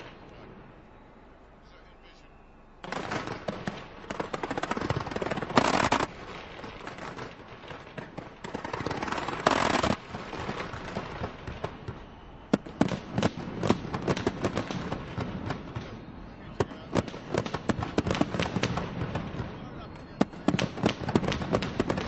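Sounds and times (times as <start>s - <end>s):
fireworks cracks and bangs: 2.8s - 22.0s.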